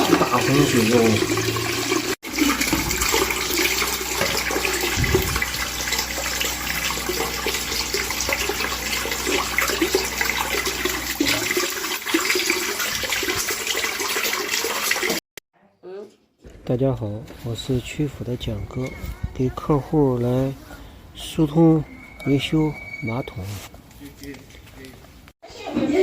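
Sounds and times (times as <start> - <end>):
water gushing: 0.0 - 15.2
low hum: 2.4 - 11.7.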